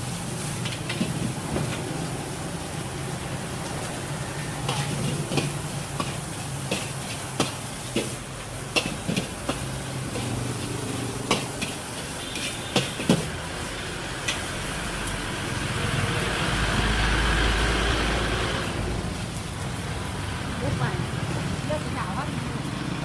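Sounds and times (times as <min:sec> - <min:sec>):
food sizzling in a pan: 0:00.0 - 0:23.0
utensil clacking against pan: 0:04.6 - 0:10.4, 0:11.2 - 0:13.3.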